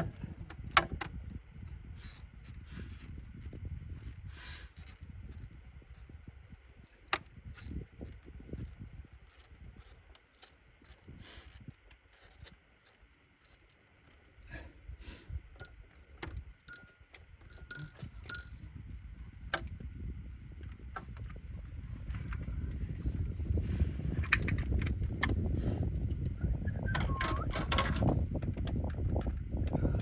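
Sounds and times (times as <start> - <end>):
metallic clicks of hand tools: 15.6 - 18.6.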